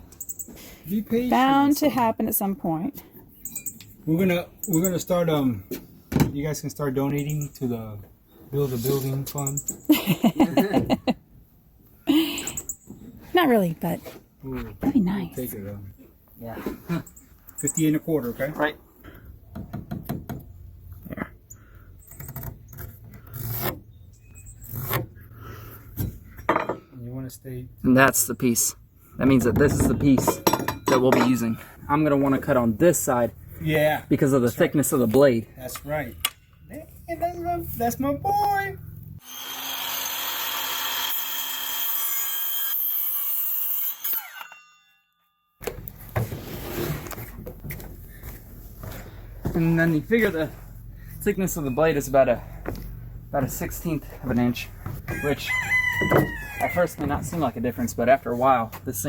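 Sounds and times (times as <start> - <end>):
power saw cutting wood: 39.2 - 44.6
saw blade winding down: 39.2 - 44.9.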